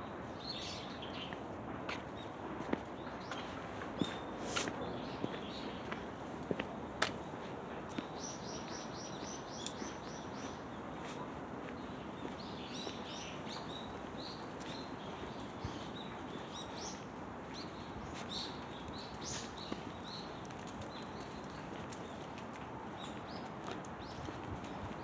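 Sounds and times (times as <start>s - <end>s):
outdoor background noise: 0.0s - 25.0s
small birds chirping: 0.4s - 25.0s.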